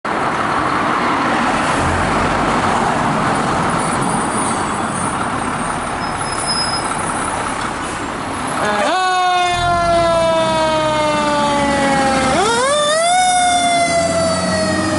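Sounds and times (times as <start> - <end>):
road traffic passing: 0.1 - 14.9.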